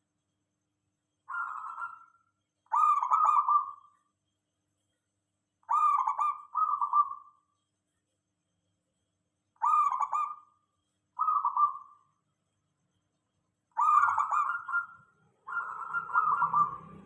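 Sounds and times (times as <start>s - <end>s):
dove cooing: 1.3s - 2.1s, 2.7s - 3.9s, 5.7s - 7.4s, 9.6s - 10.5s, 11.2s - 12.0s, 13.8s - 17.0s.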